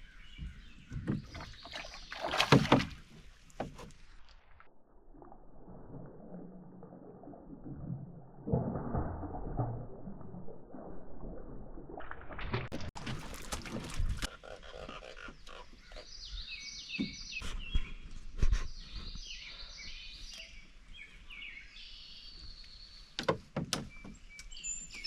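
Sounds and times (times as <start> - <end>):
songbird chirping: 0.0 - 3.0, 14.4 - 25.0.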